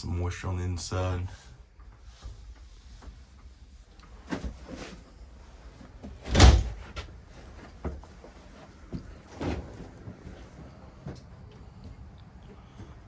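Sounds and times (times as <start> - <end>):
light knocks and rattles: 1.8 - 13.0
door closing clunk: 6.1 - 7.1.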